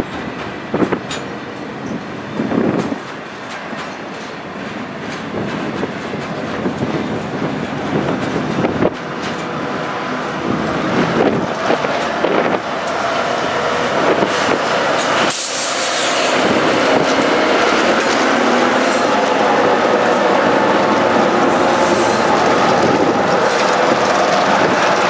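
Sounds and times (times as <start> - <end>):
vehicle rumbling and clattering: 0.0 - 25.0
sharp hiss: 15.2 - 16.3.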